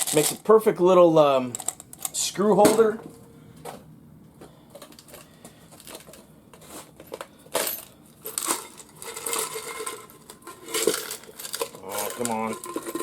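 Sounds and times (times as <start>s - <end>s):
screws rattling in a tin can: 0.0s - 0.5s, 7.6s - 13.0s.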